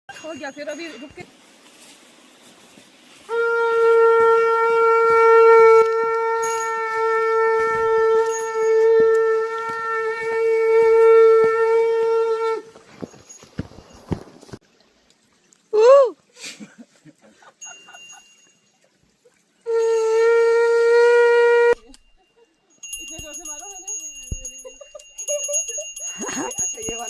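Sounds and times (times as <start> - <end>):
conch shell blown: 3.2 - 12.8, 19.6 - 21.9.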